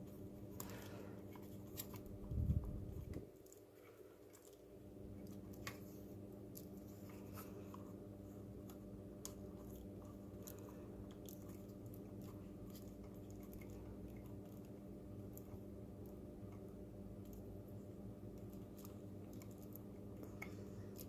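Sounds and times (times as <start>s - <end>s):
steady low hum: 0.0s - 21.0s
plastic parts clicking and scraping: 0.4s - 4.6s.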